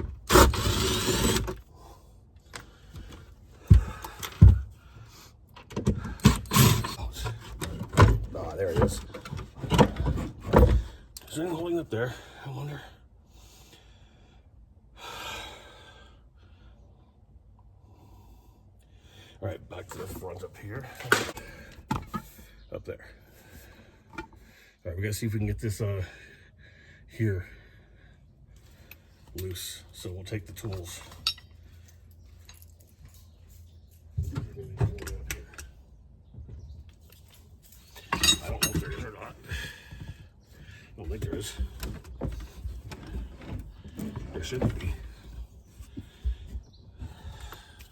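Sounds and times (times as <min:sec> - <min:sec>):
metal tools clinking: 0:30.4 - 0:35.7, 0:37.1 - 0:39.4.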